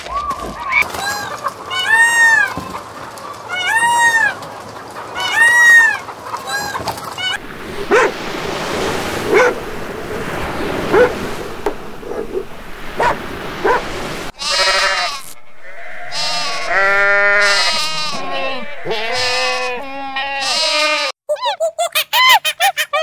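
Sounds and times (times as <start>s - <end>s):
surf: 0.0s - 19.7s
dog barking: 7.8s - 8.2s, 9.2s - 9.6s, 10.8s - 11.2s, 12.0s - 13.9s
peacock calling: 10.2s - 21.1s.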